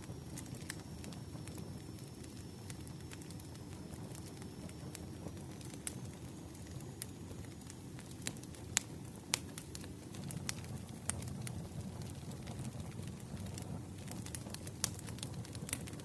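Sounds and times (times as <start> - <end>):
burning wood crackling and popping: 0.0 - 16.0
rush of flames: 0.0 - 16.0.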